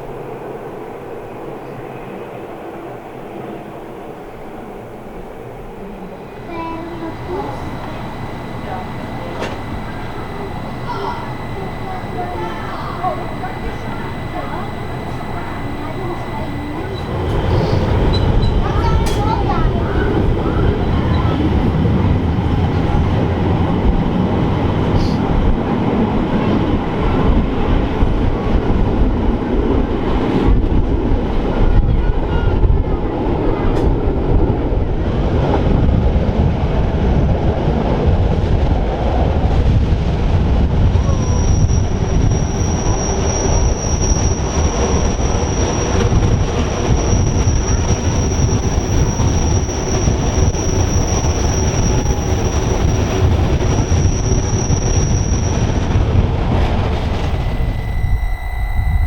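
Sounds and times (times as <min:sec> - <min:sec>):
train rumbling on rails: 0:00.0 - 0:59.0
high-pitched wheel squeal: 0:06.5 - 0:23.8, 0:41.1 - 0:56.0, 0:56.9 - 0:59.0.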